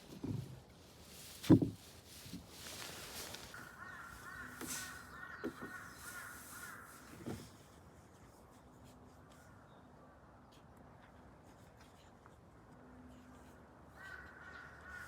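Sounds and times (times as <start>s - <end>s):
bird calling: 3.3s - 7.0s.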